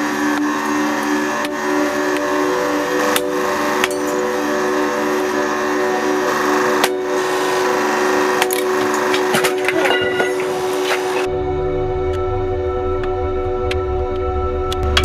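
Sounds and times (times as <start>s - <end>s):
hydraulic press humming: 0.0s - 11.4s.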